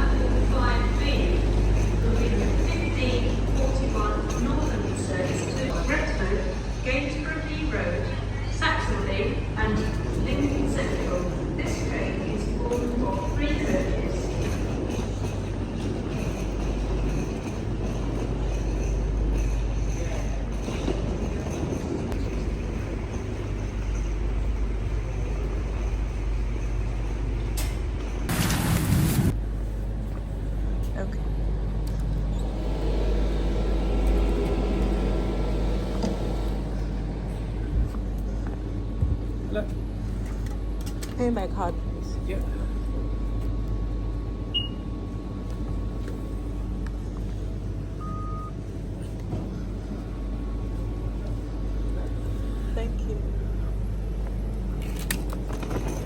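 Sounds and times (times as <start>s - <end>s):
train rumbling: 0.0s - 56.0s
short electronic beeps: 44.5s - 44.8s.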